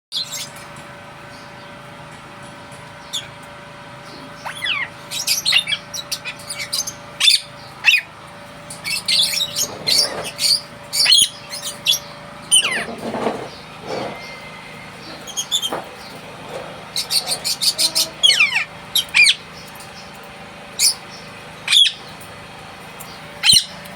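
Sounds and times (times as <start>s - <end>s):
parrots chirping: 3.0s - 3.4s, 4.0s - 8.1s, 8.7s - 20.2s, 20.8s - 22.2s, 23.1s - 23.9s.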